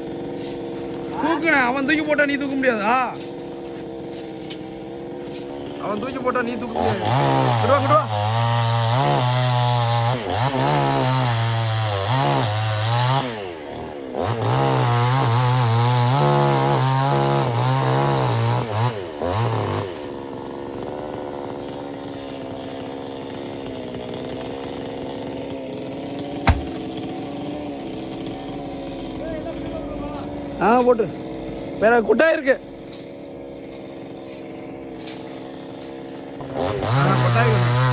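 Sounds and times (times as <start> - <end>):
chainsaw cutting wood: 0.0 - 37.9
sharp knock: 26.4 - 26.9.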